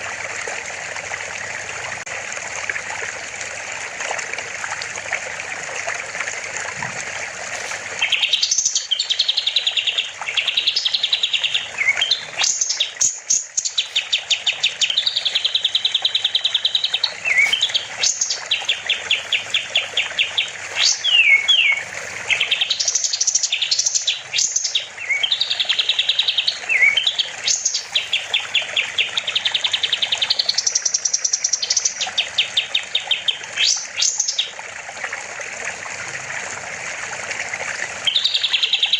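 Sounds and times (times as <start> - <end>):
running water hiss: 0.0 - 38.9
bulbul singing trilled notes: 8.0 - 32.0.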